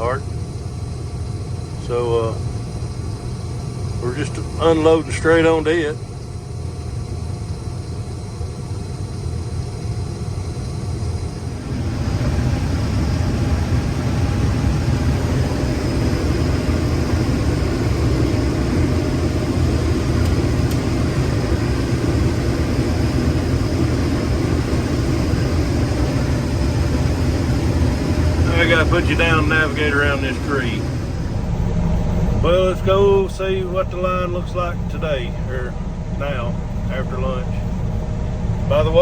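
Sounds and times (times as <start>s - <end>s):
combine engine running: 0.0s - 39.0s.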